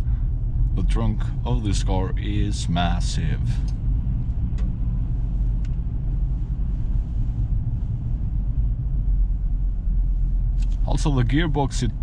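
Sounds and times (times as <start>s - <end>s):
diesel engine and tyres rumbling: 0.0s - 12.0s.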